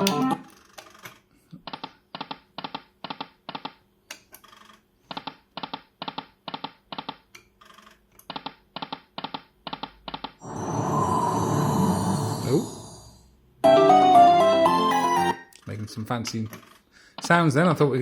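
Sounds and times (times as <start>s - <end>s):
poker machine electronic clicks: 0.0s - 10.4s.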